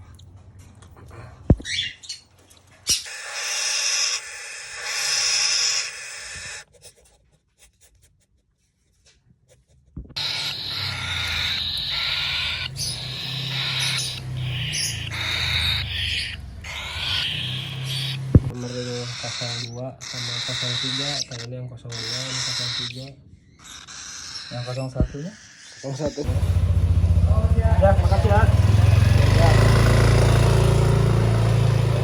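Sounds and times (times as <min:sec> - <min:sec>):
parrot chicks raspy hissing calls: 0:02.9 - 0:07.1, 0:10.2 - 0:26.6.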